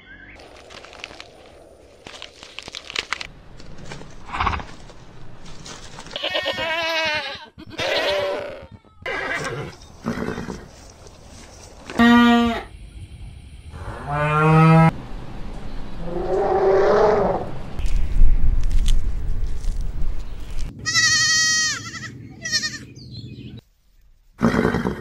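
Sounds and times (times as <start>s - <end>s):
farm animals calling: 6.0s - 10.9s, 20.8s - 23.6s.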